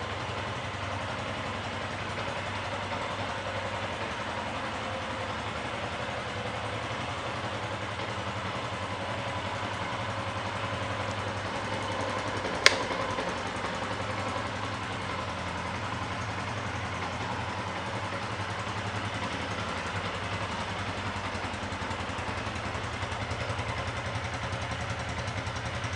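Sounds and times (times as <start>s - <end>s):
motorcycle engine idling: 0.0s - 25.9s
sharp click: 12.6s - 13.0s.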